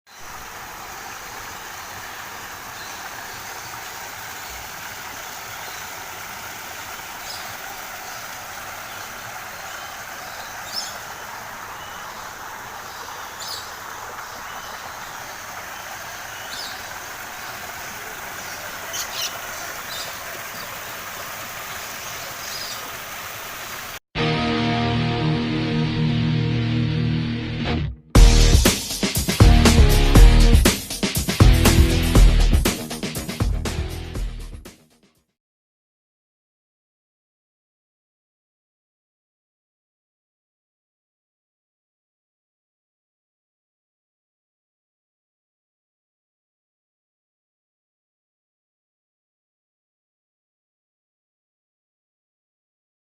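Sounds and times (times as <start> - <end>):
short high bird calls: 18.4 - 20.7.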